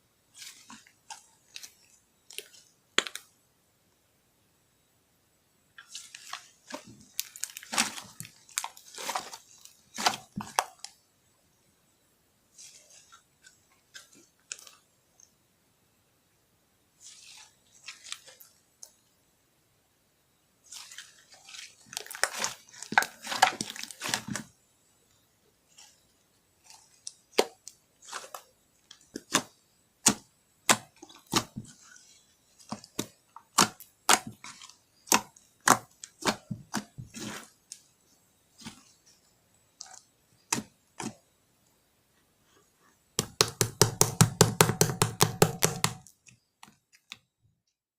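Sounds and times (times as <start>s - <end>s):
slime squishing and crackling: 5.8s - 11.0s, 20.7s - 24.5s, 26.6s - 41.2s.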